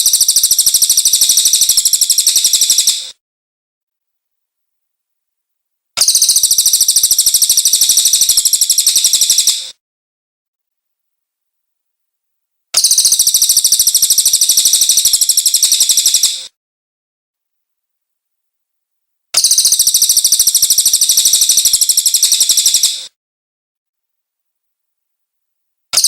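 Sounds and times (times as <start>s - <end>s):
bird rattling trill: 0.0s - 3.1s, 6.0s - 9.7s, 12.8s - 16.5s, 19.4s - 23.0s.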